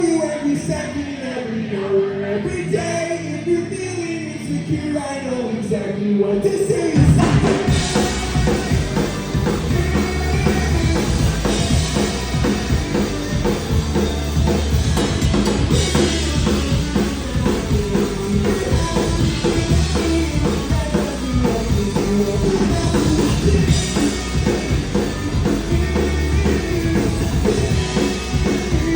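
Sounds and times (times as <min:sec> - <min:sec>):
live rock band playing: 0:06.6 - 0:28.9
drum kit beat: 0:07.0 - 0:28.9.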